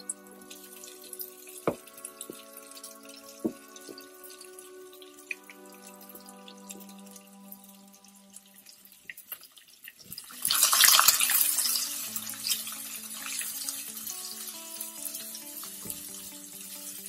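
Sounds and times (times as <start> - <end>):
onion and garlic sizzling in oil: 8.4 - 17.0.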